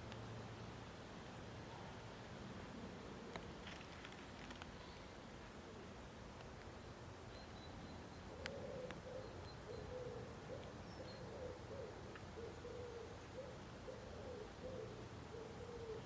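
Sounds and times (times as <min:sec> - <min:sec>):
pigeon cooing: 0:08.4 - 0:16.0.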